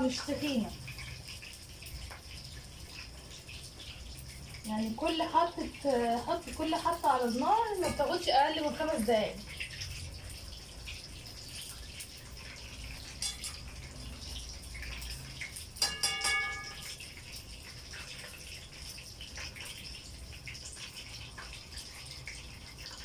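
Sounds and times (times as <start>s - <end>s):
chicken frying in hot oil: 0.0s - 23.0s
metallic clink: 15.8s - 17.0s.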